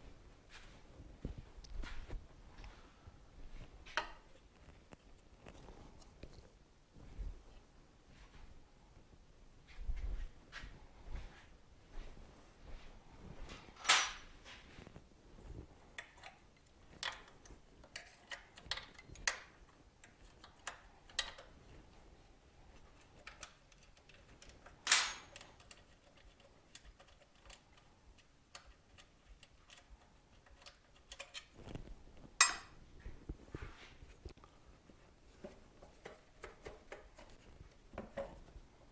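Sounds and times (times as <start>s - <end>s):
tools and parts clicking: 13.7s - 14.4s, 16.0s - 21.5s, 23.1s - 31.6s, 32.4s - 32.8s.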